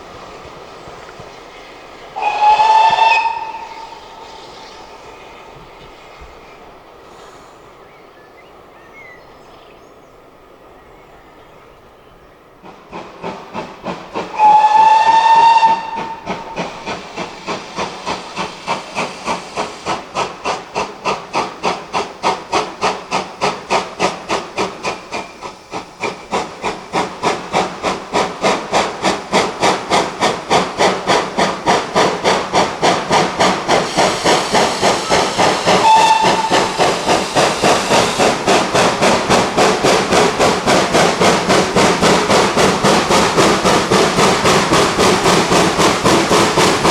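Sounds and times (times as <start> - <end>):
steam locomotive exhaust beats: 0.0 - 9.0, 12.5 - 46.9
steam locomotive whistle: 2.2 - 4.6, 14.3 - 16.6, 34.0 - 38.5.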